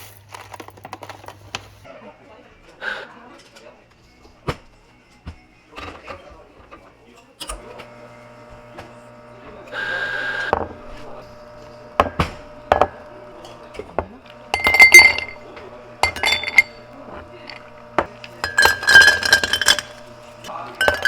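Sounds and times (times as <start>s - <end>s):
steady low hum: 10.8s - 21.0s
glassware clinking: 12.0s - 13.9s, 14.5s - 21.0s.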